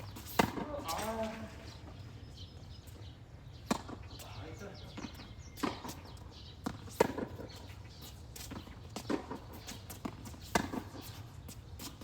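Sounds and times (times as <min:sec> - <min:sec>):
tennis balls struck by rackets: 0:00.0 - 0:01.0, 0:03.6 - 0:04.2, 0:05.0 - 0:06.0, 0:06.6 - 0:07.5, 0:08.4 - 0:11.2.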